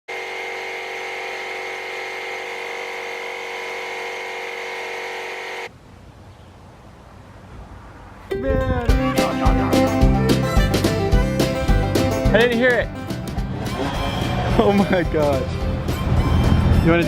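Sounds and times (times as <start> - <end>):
steady buzzing hum: 0.1 - 5.7.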